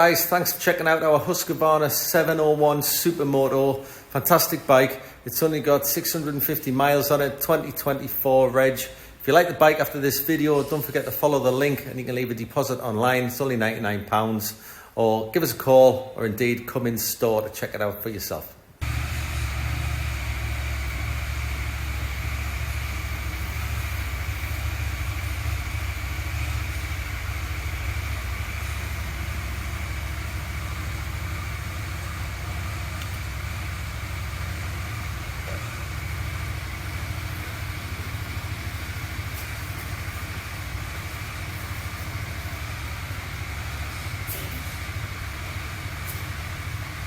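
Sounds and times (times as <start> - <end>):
motorcycle engine idling: 18.8 - 47.0.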